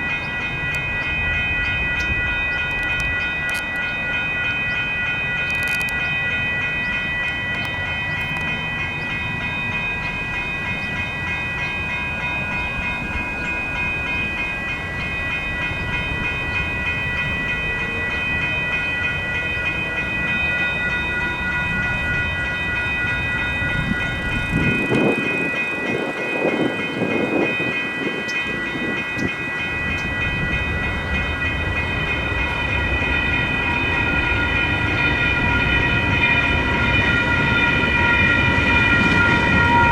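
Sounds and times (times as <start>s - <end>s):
light rail train passing: 0.0s - 39.9s
railroad crossing bells ringing: 0.0s - 39.9s.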